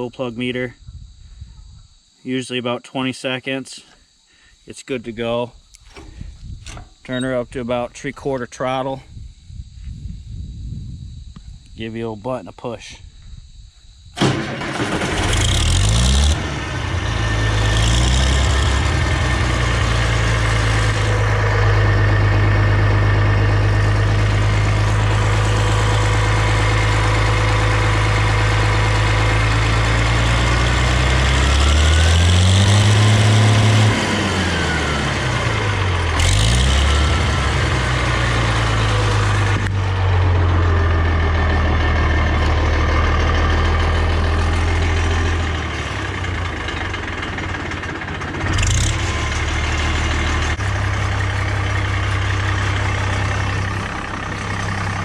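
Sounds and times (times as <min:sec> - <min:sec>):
diesel tractor engine: 0:05.0 - 0:08.9, 0:14.2 - 0:55.0.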